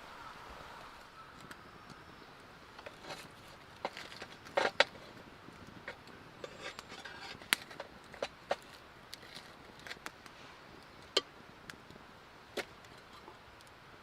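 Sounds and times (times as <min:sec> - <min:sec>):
knocks and scrapes of handling: 0:02.8 - 0:11.2.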